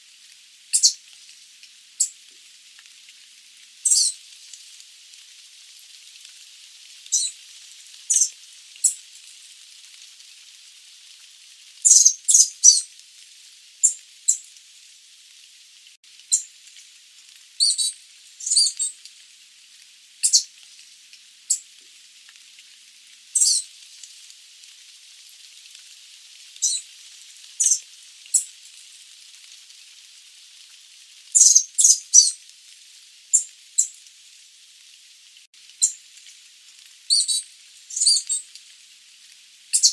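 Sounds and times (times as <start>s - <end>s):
faint hiss: 0.0s - 39.9s
high-pitched bird calls: 0.8s - 1.0s, 3.9s - 4.2s, 8.1s - 9.0s, 11.9s - 12.8s, 17.6s - 18.9s, 20.2s - 20.5s, 23.4s - 23.6s, 26.6s - 26.8s, 27.6s - 27.8s, 31.4s - 32.4s, 37.1s - 38.4s.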